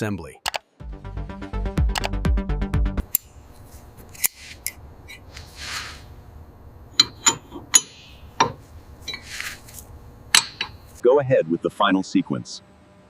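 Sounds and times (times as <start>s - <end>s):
music with steady beat: 0.8s - 3.1s
short hiss: 5.3s - 6.2s
hand tools clinking on metal: 7.0s - 9.6s, 10.4s - 10.8s.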